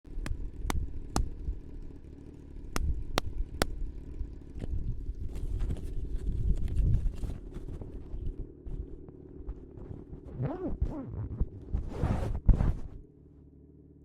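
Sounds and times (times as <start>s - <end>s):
motorcycle engine idling: 0.0s - 11.8s, 12.8s - 14.0s.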